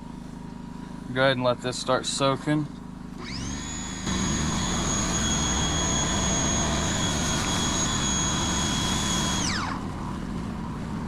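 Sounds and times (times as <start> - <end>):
electric motor whining: 3.2 - 10.9.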